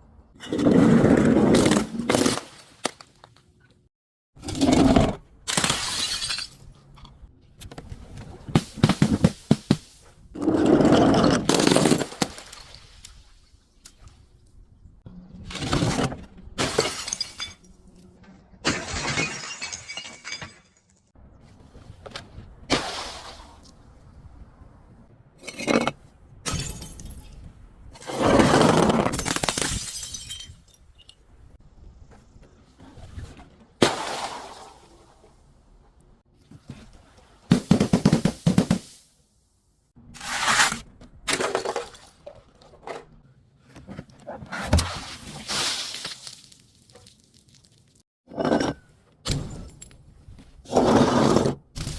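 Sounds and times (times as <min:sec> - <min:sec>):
glass bottles shattering: 0:05.5 - 0:06.7, 0:16.6 - 0:17.8, 0:18.7 - 0:21.0, 0:29.1 - 0:31.1.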